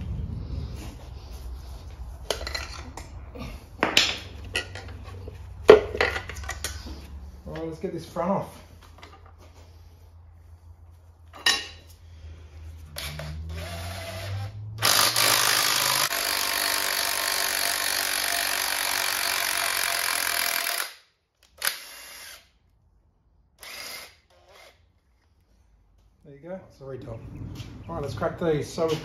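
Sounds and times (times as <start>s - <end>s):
power tool motor running: 12.9s - 21.0s.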